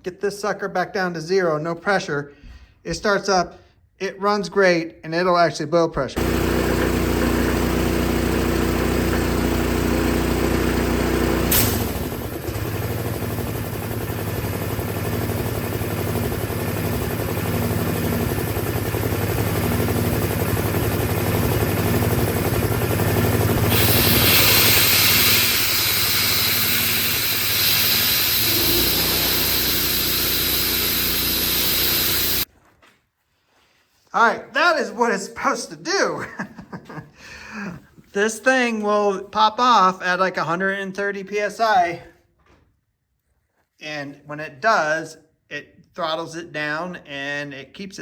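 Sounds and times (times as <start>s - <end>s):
air compressor engine running: 6.2s - 32.5s.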